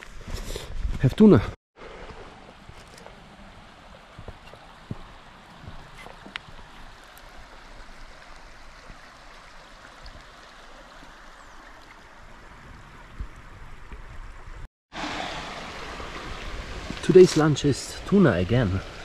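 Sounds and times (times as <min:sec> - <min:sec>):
river rushing: 0:15.0 - 0:19.0.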